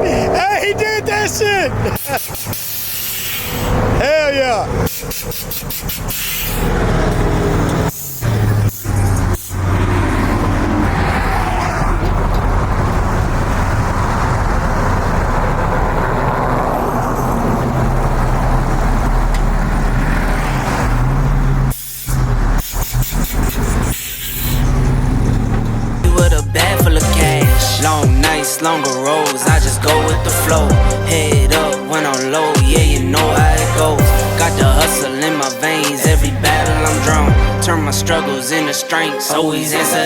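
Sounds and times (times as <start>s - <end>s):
car engine at high revs: 0.0s - 28.4s, 29.0s - 38.2s.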